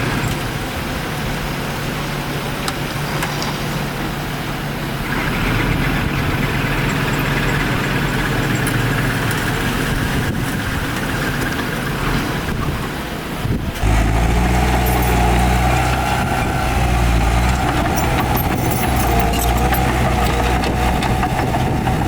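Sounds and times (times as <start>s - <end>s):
heavy diesel engine running: 4.5s - 22.0s.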